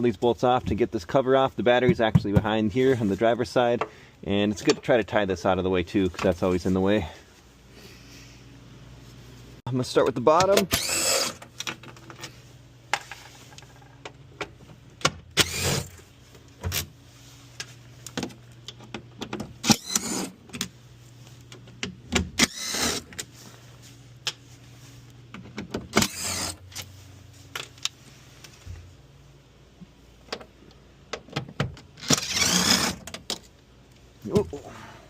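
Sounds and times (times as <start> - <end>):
cordless drill whirring: 10.8 - 11.4, 15.4 - 15.9, 19.6 - 20.3, 22.4 - 23.0, 26.0 - 26.6, 32.0 - 33.0.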